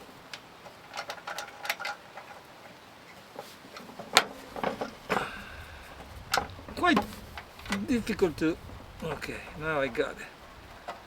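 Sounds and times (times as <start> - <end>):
metal lantern parts clicking and clinking: 0.7 - 2.4.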